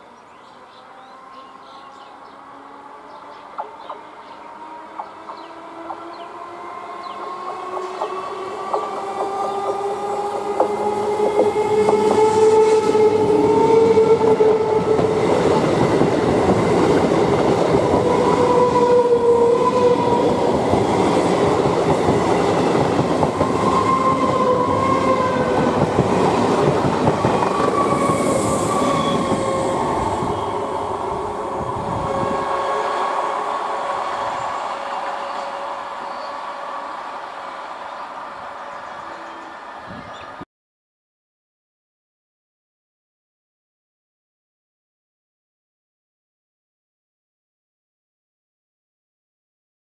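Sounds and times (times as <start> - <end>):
train whine: 0.8 - 40.4
train wheels rushing and rattling: 7.0 - 35.4.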